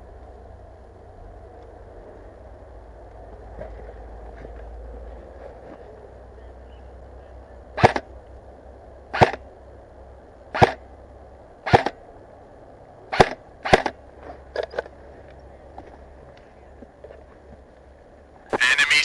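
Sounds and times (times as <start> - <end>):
airsoft rifle shots: 7.8 - 8.0, 9.2 - 9.4, 10.6 - 10.8, 11.6 - 12.0, 13.1 - 14.0.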